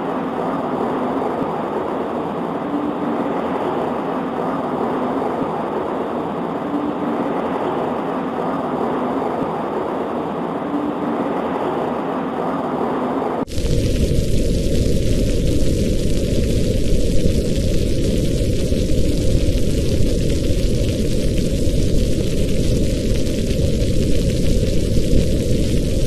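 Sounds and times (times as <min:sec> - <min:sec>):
rain on a window pane: 0:00.0 - 0:26.0
deep rumble of thunder: 0:12.8 - 0:26.0.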